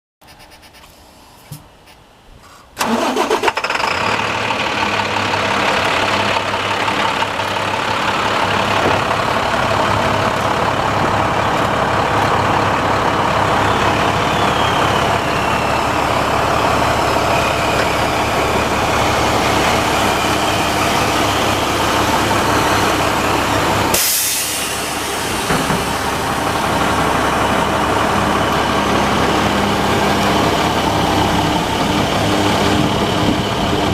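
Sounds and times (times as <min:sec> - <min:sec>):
diesel truck engine idling: 0:02.8 - 0:33.9
short sharp hiss: 0:24.0 - 0:25.5.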